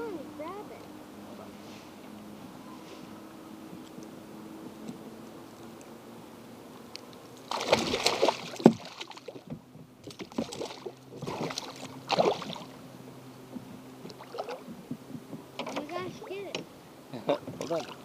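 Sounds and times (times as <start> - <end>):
fish splashing in water: 7.4 - 12.8, 14.1 - 14.7.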